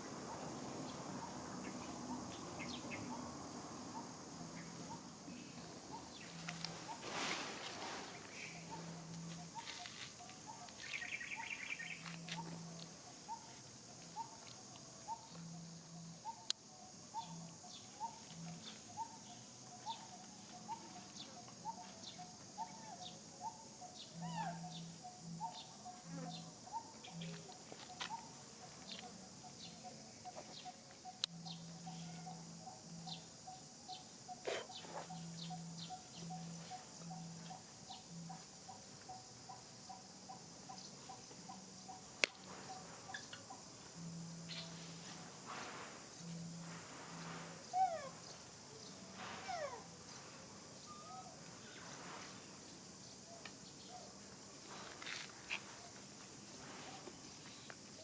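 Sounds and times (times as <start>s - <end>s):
steady high hiss: 0.0s - 58.0s
bird chirping: 0.3s - 45.2s.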